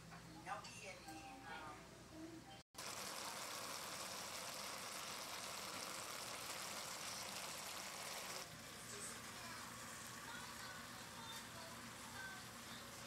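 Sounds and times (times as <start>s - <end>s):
vegetables sizzling in a pot: 2.8s - 13.0s.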